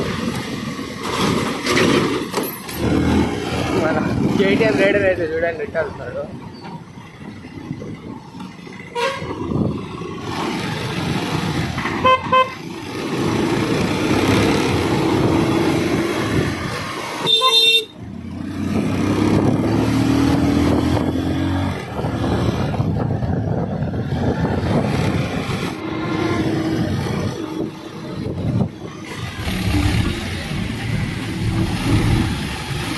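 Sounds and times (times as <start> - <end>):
wind and road noise: 0.0 - 32.9
vehicle horns honking: 8.9 - 9.4, 12.0 - 12.6, 17.2 - 18.0
motorcycle engine accelerating: 12.8 - 17.0, 18.1 - 32.9.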